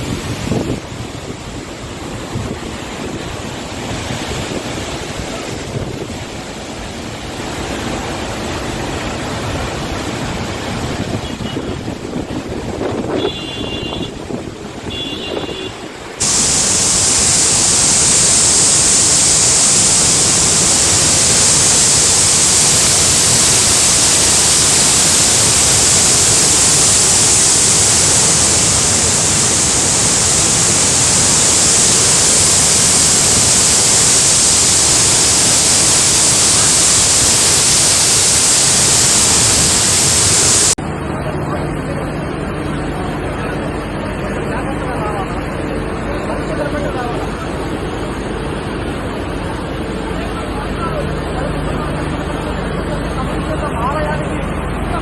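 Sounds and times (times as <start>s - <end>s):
heavy rain and rushing water: 16.2s - 40.8s
short high-pitched tones: 16.2s - 40.8s.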